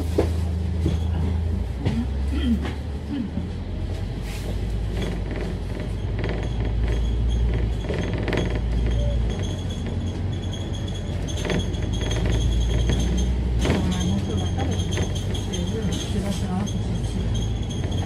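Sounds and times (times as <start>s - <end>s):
bus engine and road rumble: 0.0s - 18.0s
interior fittings rattling: 4.9s - 18.0s.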